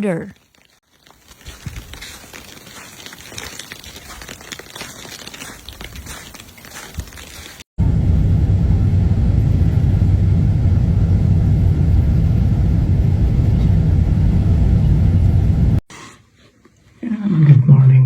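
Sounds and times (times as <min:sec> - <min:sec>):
loud low rumble: 0:07.8 - 0:15.8.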